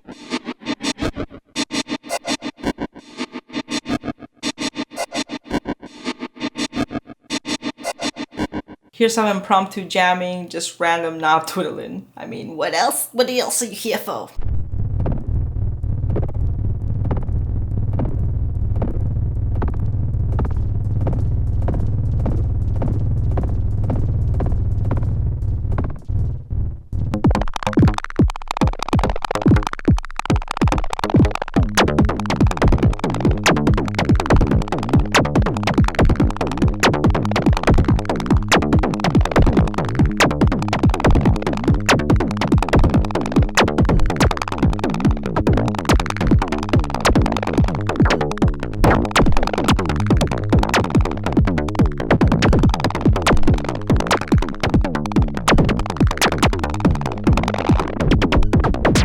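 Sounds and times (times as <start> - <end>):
electronic drum pattern: 0.0 - 8.5, 27.3 - 59.0
pitched low synth tones: 31.0 - 59.0.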